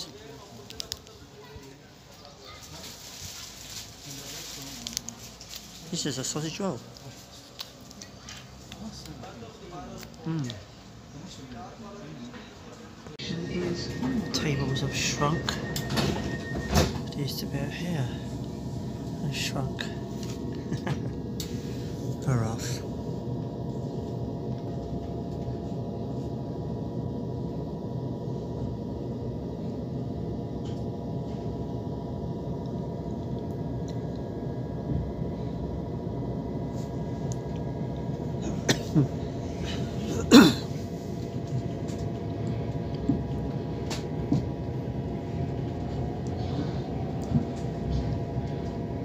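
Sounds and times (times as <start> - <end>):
electric train motor hum: 3.2 - 49.0.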